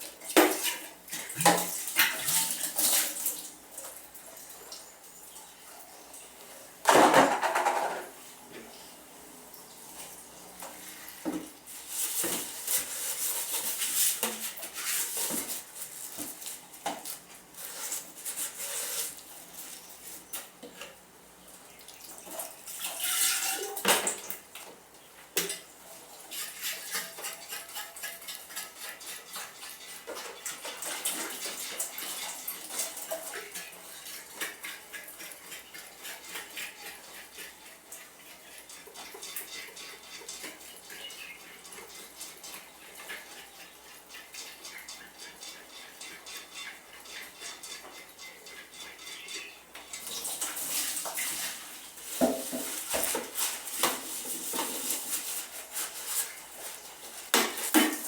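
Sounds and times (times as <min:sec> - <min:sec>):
dishes and cutlery clinking: 0:00.3 - 0:05.5, 0:06.8 - 0:08.7, 0:25.4 - 0:58.0.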